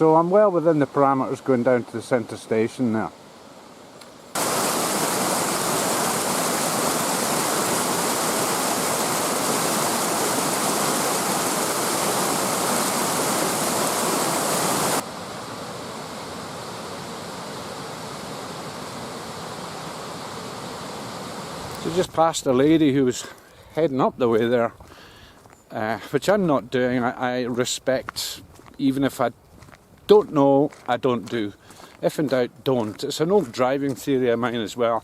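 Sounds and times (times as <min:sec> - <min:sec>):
stream water rushing: 0:00.0 - 0:22.3.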